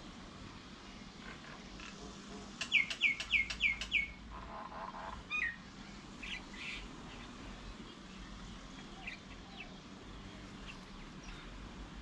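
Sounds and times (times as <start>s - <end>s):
bird calling with falling notes: 2.7s - 4.2s.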